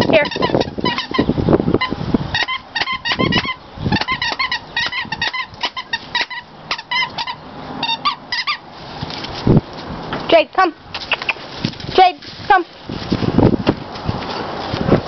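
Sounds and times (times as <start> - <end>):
dog chewing squeaky toy: 0.0 - 8.7.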